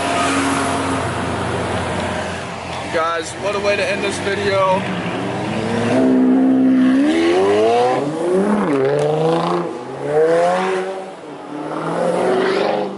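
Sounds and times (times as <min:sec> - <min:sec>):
car engine accelerating hard: 0:03.9 - 0:12.9.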